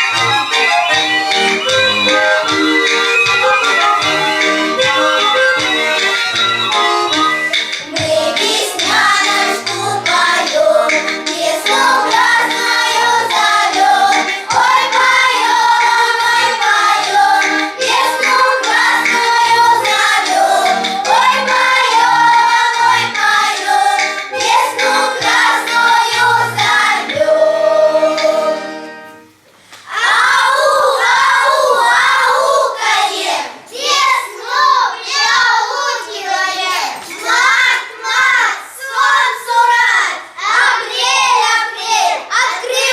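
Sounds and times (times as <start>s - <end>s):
children singing: 0.0s - 29.1s, 29.9s - 42.9s
musical accompaniment: 0.0s - 29.7s.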